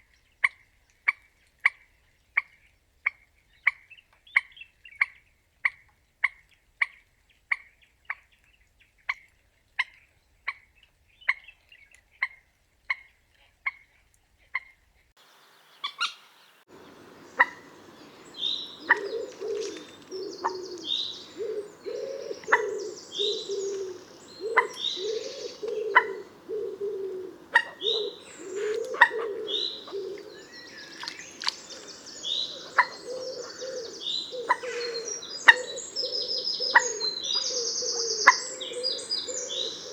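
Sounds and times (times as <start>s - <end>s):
background bird chatter: 15.2s - 39.9s
moorhen calling: 15.2s - 39.9s
high bird chirps: 15.3s - 26.3s.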